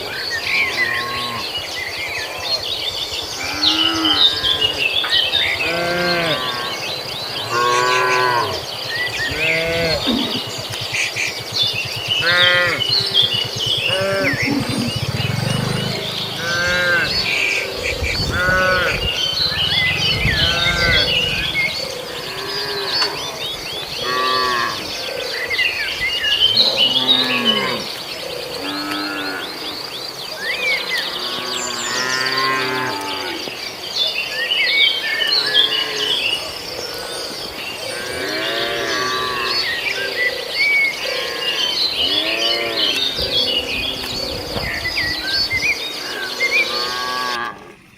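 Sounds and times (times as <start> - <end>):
high insect drone: 0.0 - 30.1
cattle mooing: 3.4 - 4.8, 5.6 - 10.8, 11.9 - 24.9, 26.5 - 27.9, 31.0 - 33.5, 38.0 - 40.1, 41.1 - 47.9.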